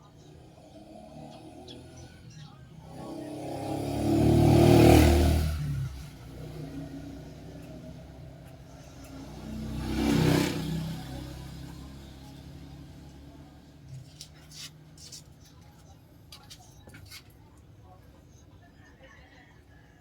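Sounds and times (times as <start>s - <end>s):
engine idling and revving: 0.1s - 14.9s.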